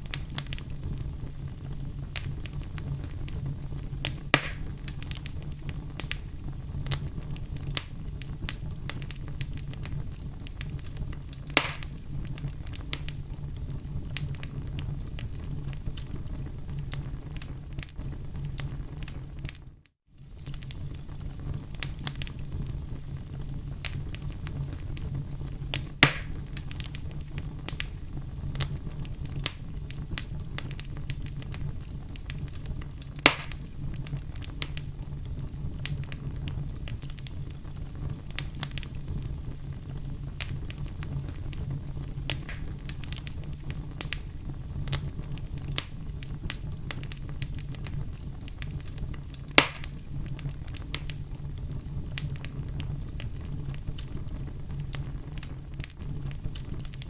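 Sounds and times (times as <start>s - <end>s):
wood fire burning in fireplace: 0.0s - 57.0s.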